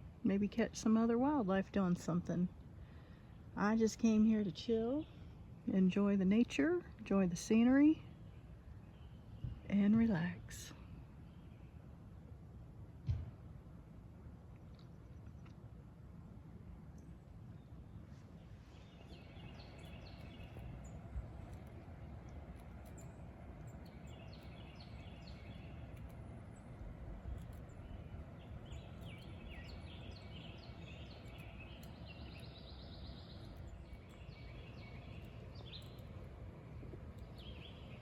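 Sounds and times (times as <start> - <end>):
songbirds chirping: 0.0 - 12.9, 14.2 - 38.0
low background rumble: 0.0 - 38.0
buzzy bird trill: 18.9 - 38.0.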